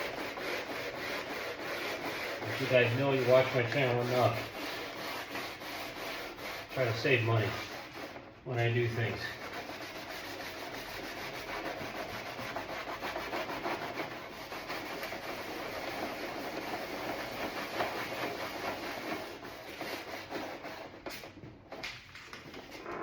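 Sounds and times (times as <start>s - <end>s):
abrasive cloth rubbing on plastic: 0.0s - 21.3s.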